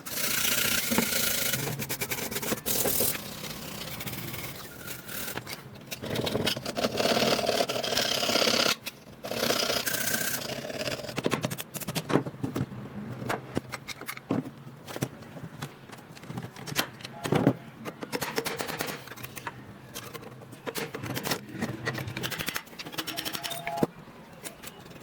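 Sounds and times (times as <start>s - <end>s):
sharp metallic clicks and knocks: 11.0s - 25.0s.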